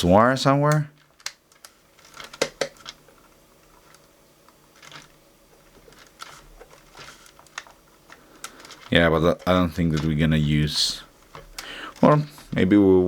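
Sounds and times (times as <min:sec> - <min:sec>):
hard objects clicking on workbench: 0:02.2 - 0:03.0.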